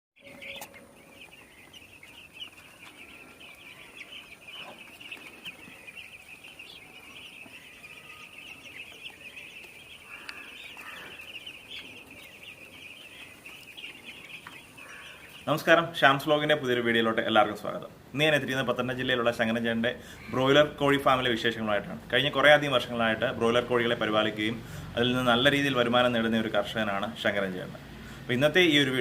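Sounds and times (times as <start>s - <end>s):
chickens peeping: 0.2s - 29.0s.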